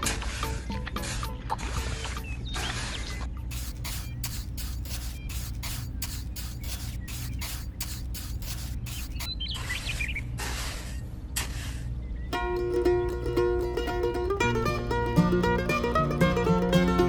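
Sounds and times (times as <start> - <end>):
short hissing strokes: 3.5 - 9.3.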